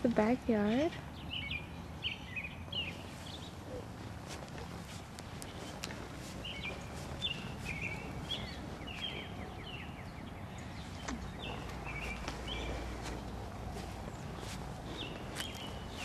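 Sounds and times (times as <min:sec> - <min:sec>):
low outdoor rumble: 0:00.0 - 0:16.0
small bird chirping: 0:00.7 - 0:16.0.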